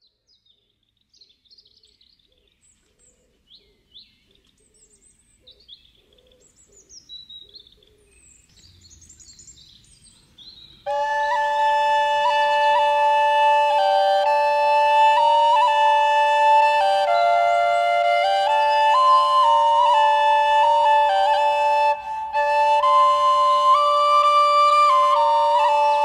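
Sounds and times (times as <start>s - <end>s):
birds chirping and singing: 0.0s - 11.3s
music with long held notes: 10.9s - 26.0s.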